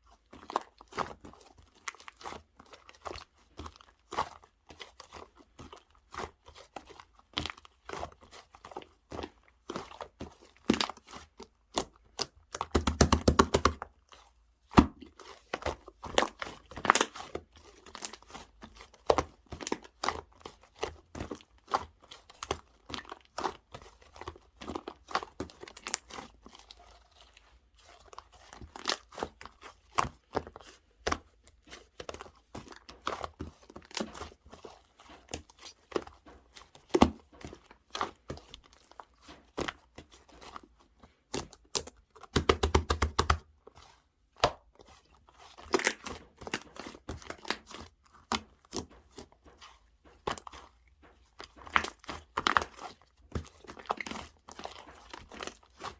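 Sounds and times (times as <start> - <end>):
slime squeezed with sticky pops: 10.6 - 13.9, 41.3 - 43.5, 45.4 - 55.9.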